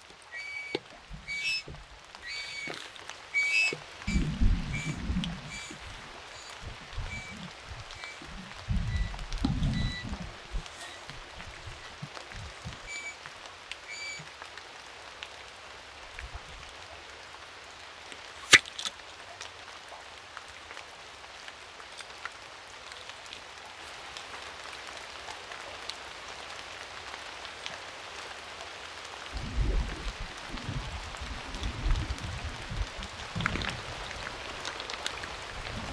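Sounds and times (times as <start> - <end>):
steady rain: 0.0 - 35.9
short high chirps: 0.3 - 11.9
low thumps: 3.4 - 12.9.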